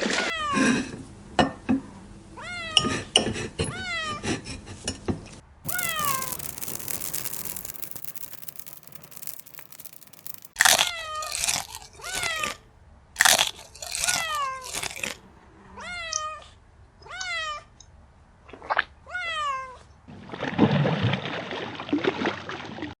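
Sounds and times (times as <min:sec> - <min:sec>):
dense crunching: 0:05.6 - 0:12.3.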